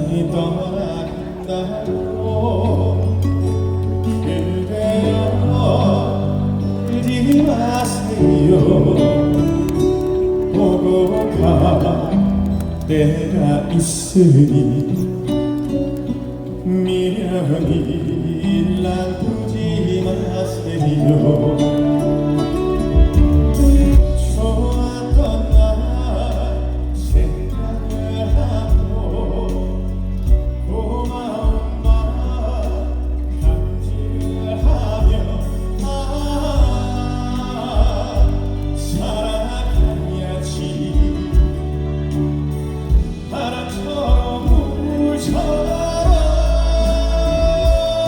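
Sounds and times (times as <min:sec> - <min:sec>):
live band playing a slow ballad: 0:00.0 - 0:48.0
sustained keyboard chords: 0:00.0 - 0:48.0
sliding melody line: 0:16.2 - 0:48.0
soft low beat: 0:22.4 - 0:26.4, 0:27.0 - 0:29.6, 0:30.2 - 0:30.8, 0:31.4 - 0:32.5, 0:33.3 - 0:35.9, 0:36.5 - 0:38.8, 0:39.7 - 0:48.0.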